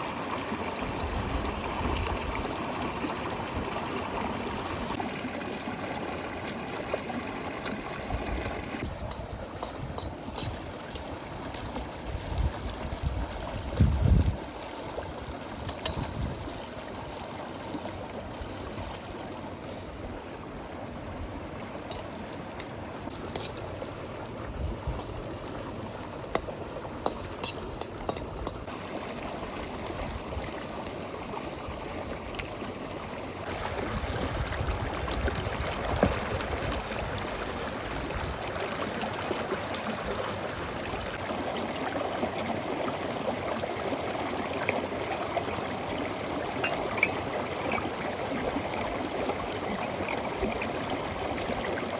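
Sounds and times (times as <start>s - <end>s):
river water flowing: 0.0s - 13.8s, 14.4s - 51.9s.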